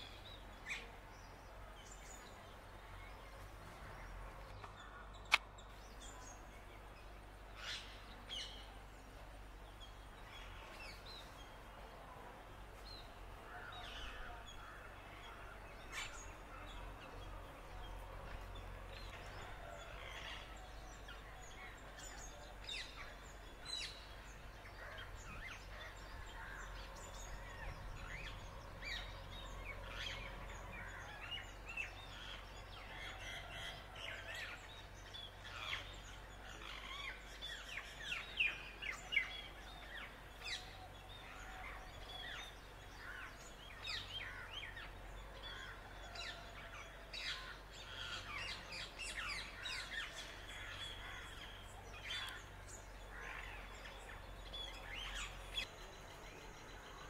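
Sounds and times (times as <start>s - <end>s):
birds chirping and calling: 13.0s - 57.0s.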